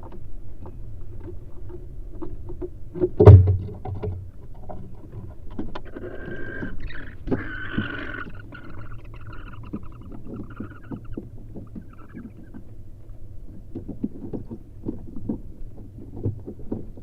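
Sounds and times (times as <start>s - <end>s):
loud thump: 3.2s - 4.2s
owls scratching in nest box: 5.8s - 12.6s
hissing owl call: 5.9s - 12.6s.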